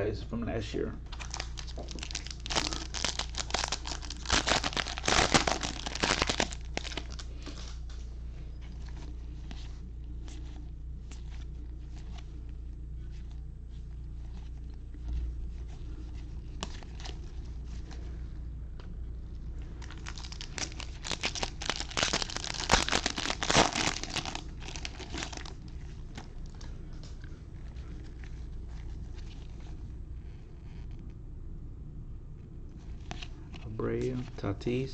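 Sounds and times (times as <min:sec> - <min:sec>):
foil wrapper tearing and crinkling: 0:01.1 - 0:07.5, 0:19.8 - 0:26.6.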